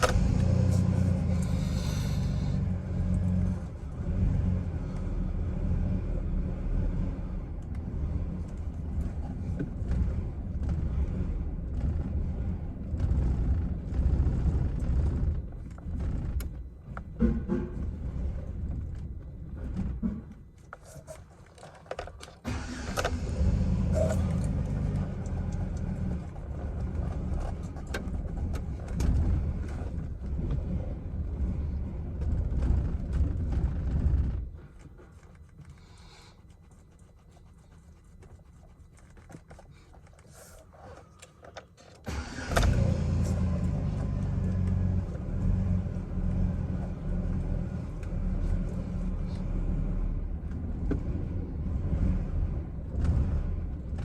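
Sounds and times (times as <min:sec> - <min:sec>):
truck engine starting: 0:00.0 - 0:36.4, 0:39.0 - 0:54.0
engine rough idle: 0:00.0 - 0:54.0.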